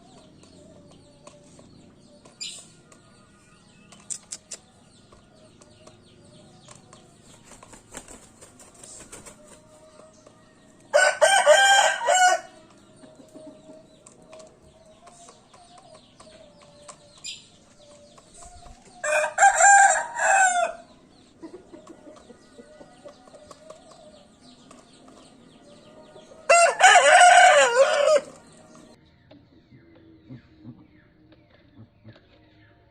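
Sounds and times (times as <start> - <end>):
rooster crowing: 10.9 - 12.6, 19.0 - 20.8, 26.5 - 28.4.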